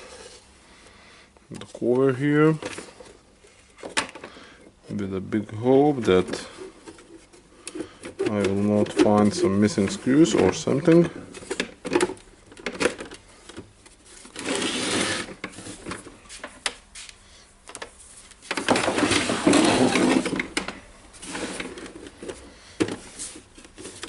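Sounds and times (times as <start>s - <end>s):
plastic scraping and rubbing: 5.9s - 16.8s, 17.8s - 24.0s.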